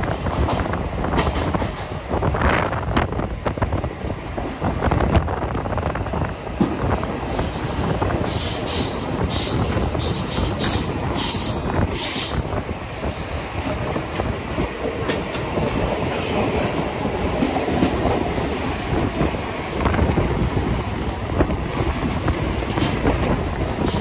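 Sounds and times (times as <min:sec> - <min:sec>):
second train passing alongside: 0:00.0 - 0:24.0
train wheels rumbling on rail: 0:00.0 - 0:24.0.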